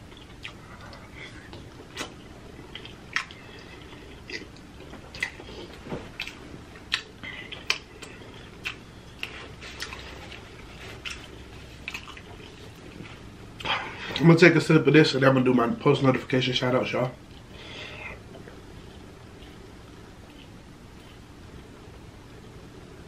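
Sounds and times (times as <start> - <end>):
close chewing with lip smacks: 0.1 - 13.7.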